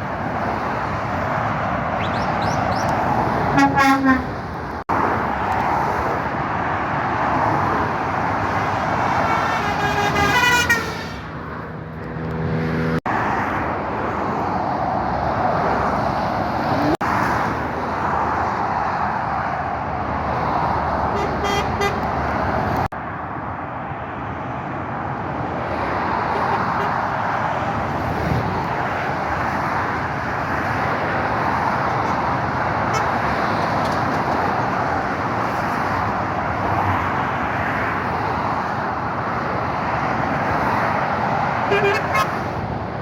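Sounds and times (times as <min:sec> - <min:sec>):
road traffic rushing past: 0:00.0 - 0:43.0
vehicle horn with falling pitch: 0:03.5 - 0:04.3, 0:09.4 - 0:11.0, 0:41.7 - 0:42.3.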